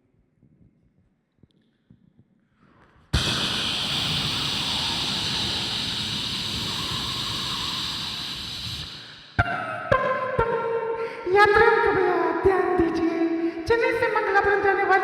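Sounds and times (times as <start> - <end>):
vocal imitation of steam hiss: 3.2 - 9.4.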